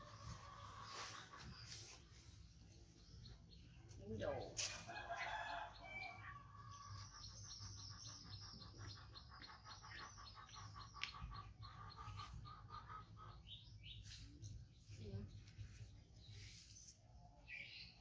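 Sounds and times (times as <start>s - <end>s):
faint bird chirping: 5.3s - 18.0s.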